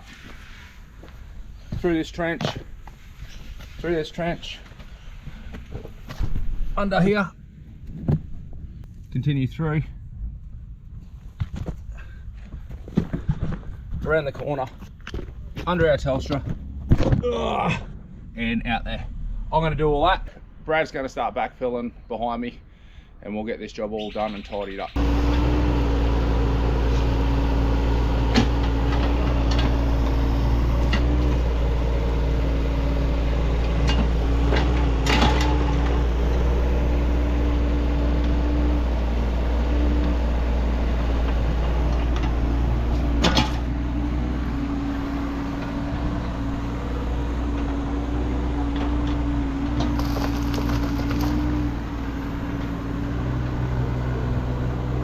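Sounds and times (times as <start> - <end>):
knocks of soil and rubble: 11.3 - 17.6, 49.7 - 51.9
digger engine running: 25.0 - 55.0.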